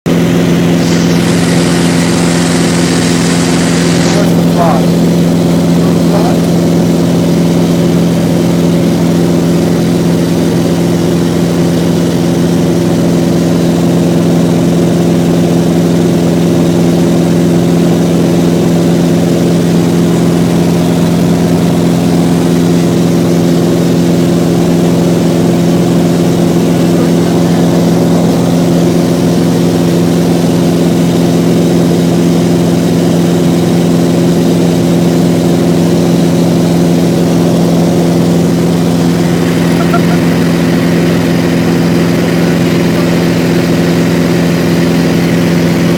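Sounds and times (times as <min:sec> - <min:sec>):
airplane engine and propeller droning: 0:00.1 - 0:45.9.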